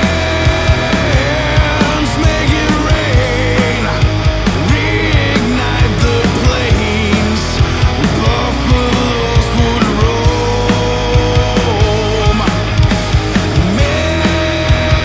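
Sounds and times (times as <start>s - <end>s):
drums steady beat: 0.0s - 15.0s
hard rock band playing: 0.0s - 15.0s.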